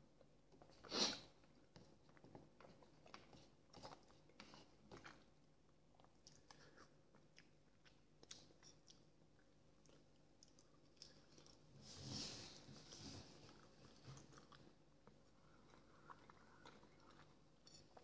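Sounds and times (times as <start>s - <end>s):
quiet chewing with mouth clicks: 0.2s - 11.8s, 12.8s - 18.0s.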